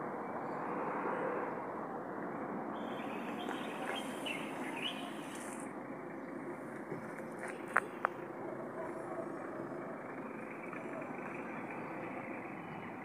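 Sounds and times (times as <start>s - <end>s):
bird chirps: 2.8s - 5.6s.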